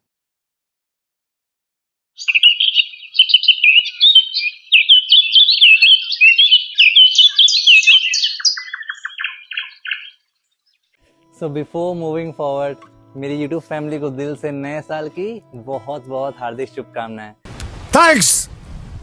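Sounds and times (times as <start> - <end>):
songbird chirping and warbling: 2.2 - 11.0.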